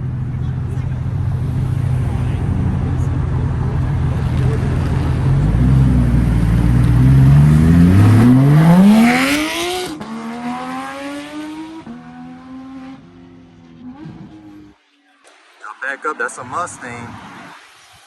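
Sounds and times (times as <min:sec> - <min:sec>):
car accelerating hard: 0:00.5 - 0:14.7.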